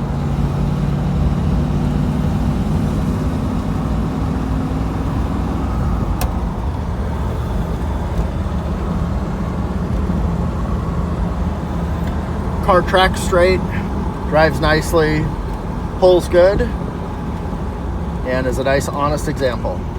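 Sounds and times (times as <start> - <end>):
car engine running while driving: 0.0 - 19.9
road noise: 0.0 - 19.9.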